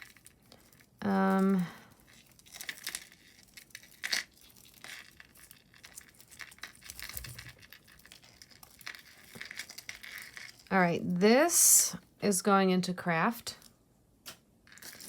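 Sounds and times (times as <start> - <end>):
jewelry clicking and clinking: 0.0 - 10.7.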